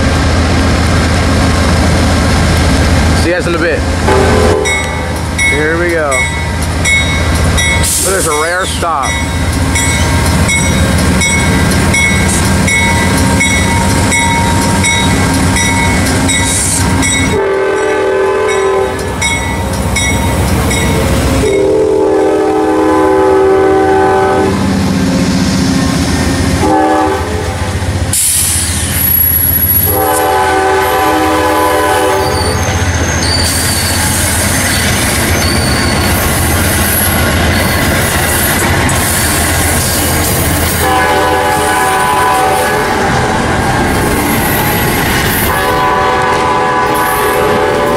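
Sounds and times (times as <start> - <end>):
diesel locomotive running: 0.0 - 47.9
train horn blasts: 4.1 - 5.0, 17.3 - 19.0, 21.4 - 24.6, 26.6 - 27.5, 29.8 - 32.6, 40.8 - 43.0, 45.5 - 47.9.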